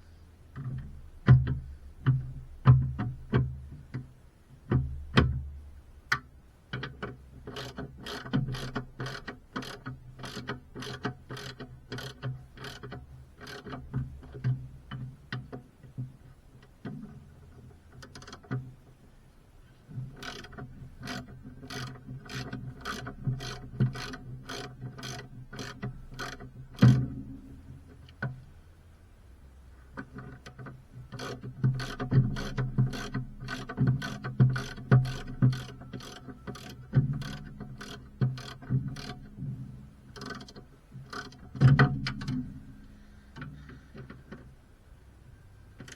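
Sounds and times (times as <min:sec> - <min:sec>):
ratchet wrench clicking: 0:07.5 - 0:13.7, 0:20.2 - 0:26.9, 0:31.2 - 0:39.3, 0:40.2 - 0:41.4.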